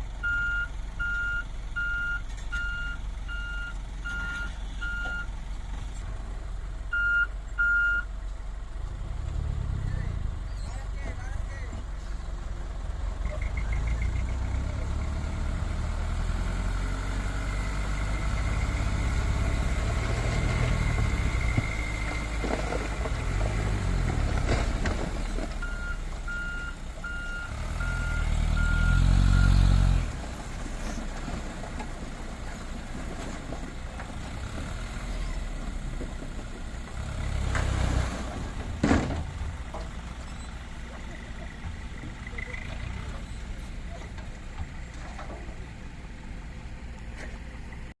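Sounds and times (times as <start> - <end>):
reversing alarm beeping: 6.9 - 8.1
diesel truck engine revving: 8.8 - 11.0, 12.2 - 45.0.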